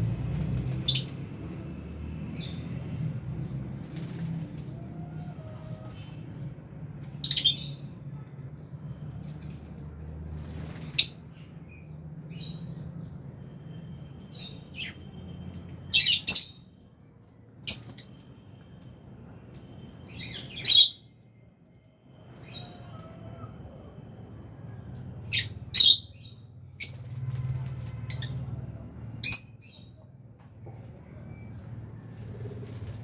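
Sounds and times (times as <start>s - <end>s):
lovebirds chirping and squawking: 0.6s - 1.2s, 3.8s - 8.0s, 10.4s - 12.8s, 15.8s - 16.8s, 17.6s - 18.3s, 20.0s - 21.2s, 25.2s - 28.6s, 29.2s - 31.7s.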